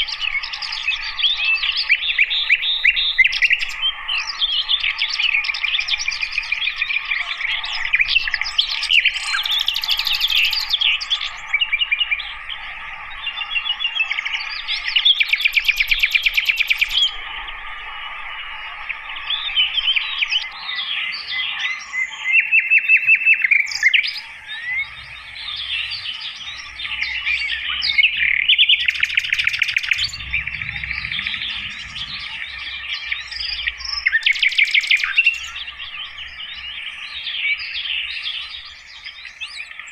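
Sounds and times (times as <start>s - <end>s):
bird singing chirps and trills: 0.0s - 39.9s
steady background drone: 23.8s - 37.4s.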